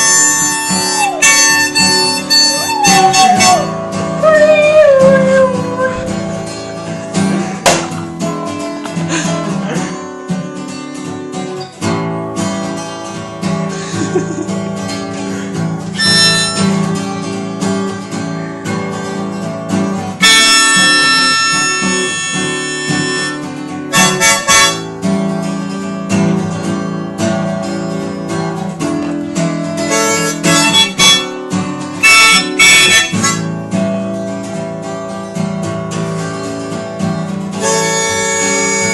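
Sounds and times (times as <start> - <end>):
blues harmonica: 0.0 - 10.0, 13.7 - 17.8, 20.2 - 25.5, 28.9 - 34.2, 37.5 - 38.9
acoustic guitar: 0.0 - 38.9.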